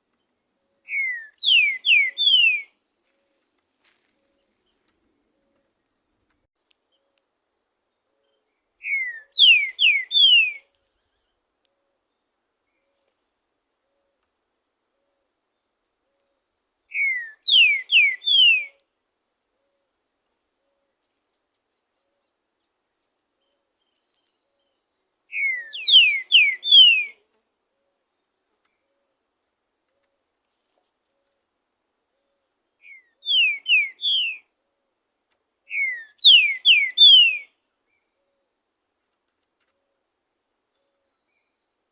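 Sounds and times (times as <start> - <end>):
bird singing whistled notes: 0.7 - 2.8, 8.1 - 11.4, 16.8 - 18.8, 23.4 - 27.2, 32.1 - 34.5, 35.7 - 38.4.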